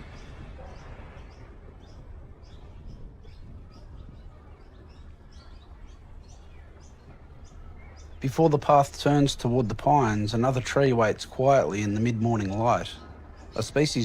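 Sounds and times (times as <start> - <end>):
low steady rumble: 0.0 - 14.0
songbird chirping: 0.0 - 14.0.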